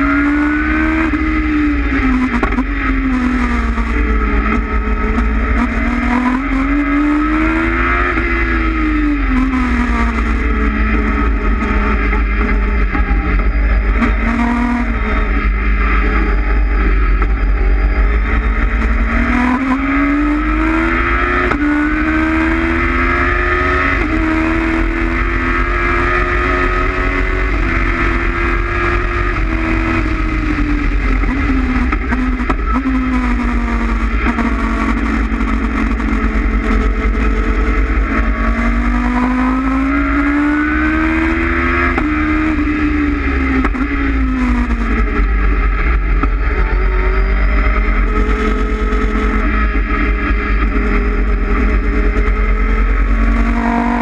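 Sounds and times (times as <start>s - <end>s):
car engine revving: 0.0s - 54.0s
low rumble: 0.0s - 54.0s.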